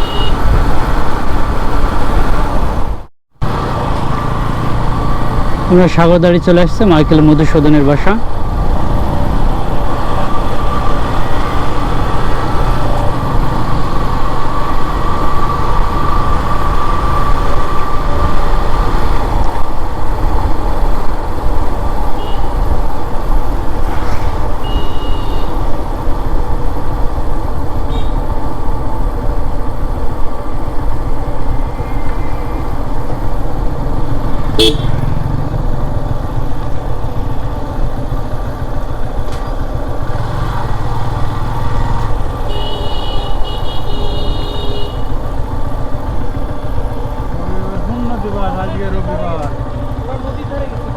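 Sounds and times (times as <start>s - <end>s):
vehicle horn toots: 0.0s - 0.5s, 22.2s - 22.6s, 24.6s - 25.6s, 34.5s - 35.0s, 42.4s - 45.2s
motorcycle engine rumble: 0.0s - 50.9s.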